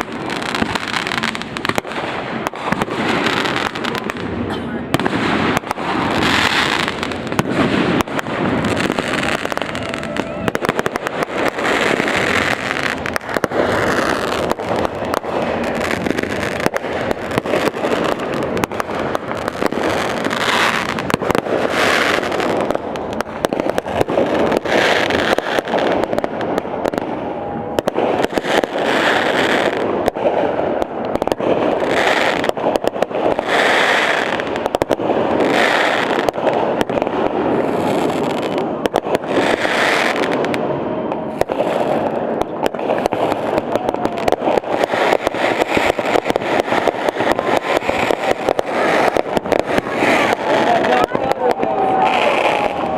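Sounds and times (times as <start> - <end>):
fireworks bangs and bursts: 0.0 - 52.9.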